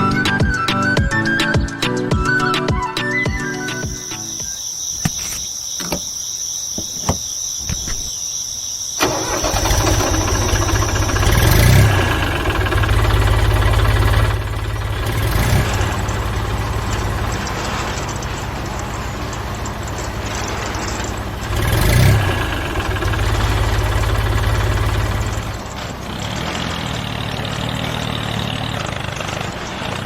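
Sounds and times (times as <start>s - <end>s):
small engine chugging: 9.0s - 30.0s.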